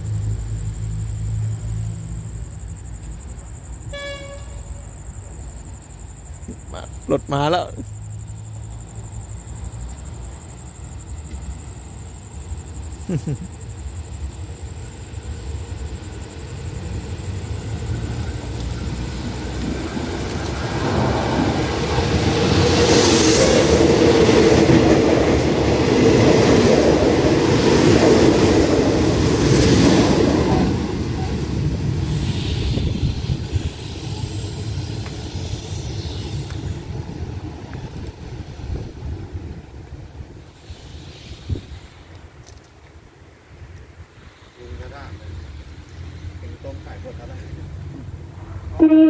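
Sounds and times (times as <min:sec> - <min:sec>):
train passing at speed: 0:00.0 - 0:49.0.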